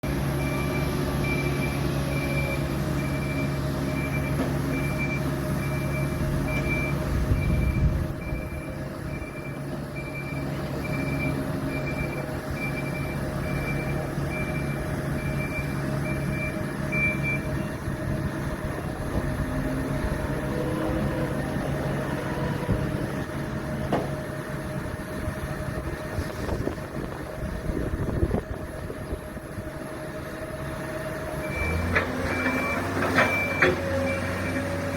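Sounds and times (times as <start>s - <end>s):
heavy machinery engines running: 0.0s - 34.9s
reversing alarm beeping: 0.3s - 18.2s, 31.3s - 34.9s.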